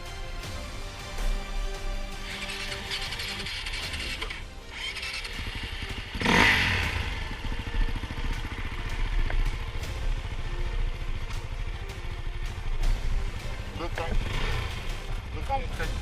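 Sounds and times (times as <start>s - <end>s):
dirt bike engine rumbling: 2.2s - 16.0s.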